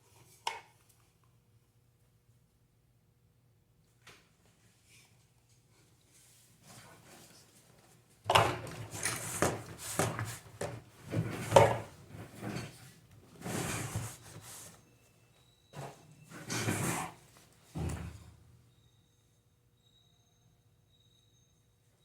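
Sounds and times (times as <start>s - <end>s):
fan parts clattering and scraping: 8.3s - 14.7s, 15.8s - 17.2s.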